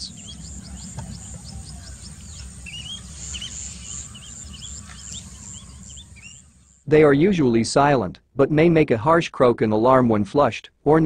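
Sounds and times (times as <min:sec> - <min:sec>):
low rumble: 0:00.0 - 0:06.8
high pulsing buzz: 0:00.0 - 0:06.9
small birds chirping: 0:00.0 - 0:06.9.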